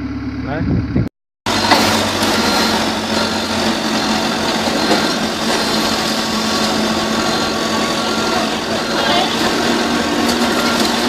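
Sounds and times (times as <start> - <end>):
machine engine running: 0.0 - 11.0.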